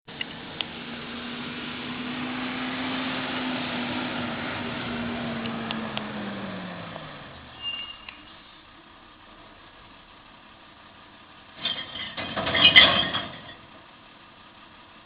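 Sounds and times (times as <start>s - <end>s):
truck diesel engine revving: 0.1s - 11.6s
short high squeal: 7.5s - 8.6s.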